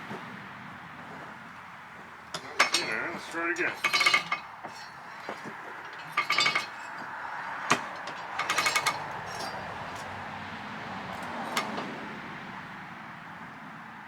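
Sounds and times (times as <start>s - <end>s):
metal parts clinking and rattling: 2.3s - 10.1s
sharp metallic knocks: 2.3s - 10.1s.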